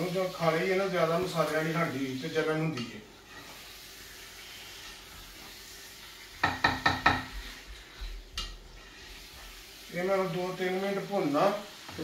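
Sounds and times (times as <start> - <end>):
meat sizzling in a pot: 0.0 - 12.0
spatula knocking against pot: 6.4 - 7.4.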